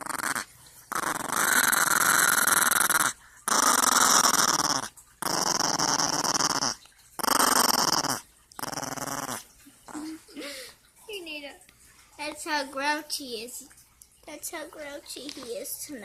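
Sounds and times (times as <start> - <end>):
dog growling: 0.0 - 10.3.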